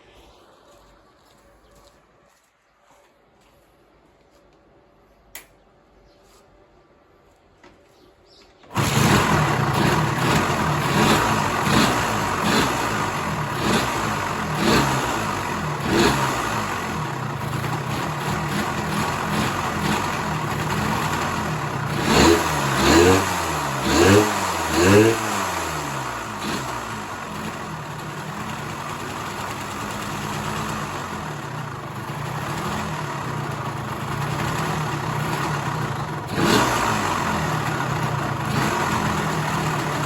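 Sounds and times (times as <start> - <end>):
motorcycle engine revving: 8.6 - 40.0
motorcycle engine starting: 8.6 - 40.0.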